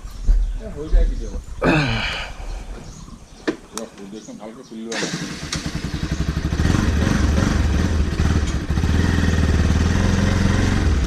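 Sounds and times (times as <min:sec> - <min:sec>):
motorcycle engine starting and idling: 0:04.9 - 0:11.0.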